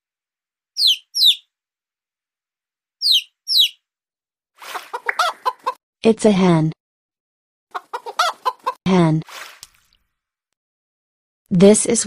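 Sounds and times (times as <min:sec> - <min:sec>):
chick peeping: 0:00.8 - 0:01.4, 0:03.0 - 0:03.8, 0:04.8 - 0:05.8, 0:07.7 - 0:08.8.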